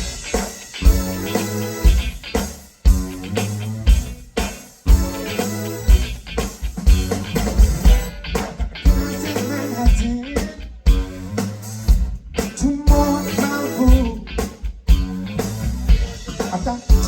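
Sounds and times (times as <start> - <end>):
guitar riff: 0.0 - 11.1
funk band playing: 0.0 - 17.0.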